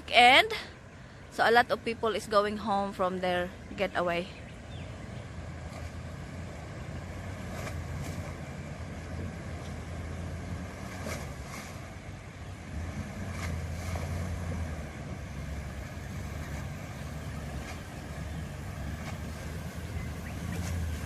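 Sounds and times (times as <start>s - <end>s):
vehicle engine running at low revs: 0.0s - 21.0s.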